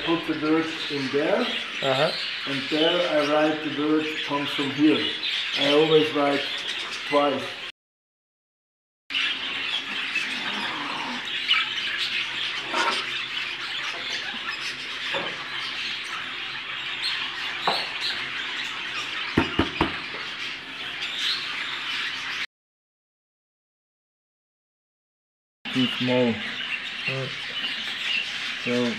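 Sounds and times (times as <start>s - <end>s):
budgerigars chattering: 0.0s - 7.7s, 9.1s - 22.4s, 25.7s - 28.9s
sharp knocks: 19.4s - 20.0s.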